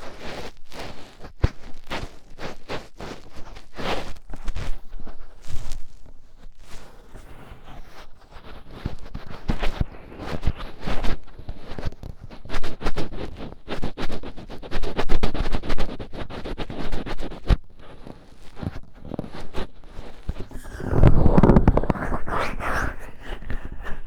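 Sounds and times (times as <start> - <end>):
fingertips scratching in ear: 20.5 - 24.0
heavy muffled rub: 20.5 - 24.0.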